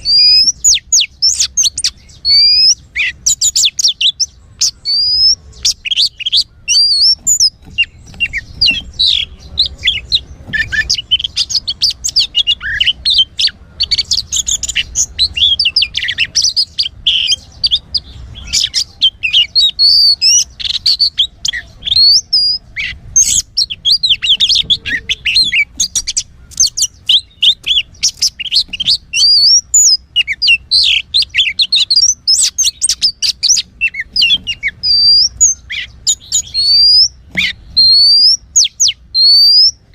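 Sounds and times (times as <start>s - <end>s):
songbird chirps trills and whistles: 0.0s - 39.9s.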